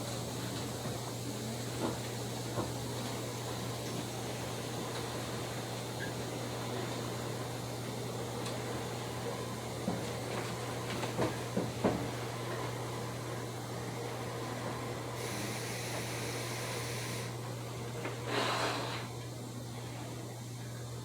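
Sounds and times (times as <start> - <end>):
high hiss: 15.2 - 17.4.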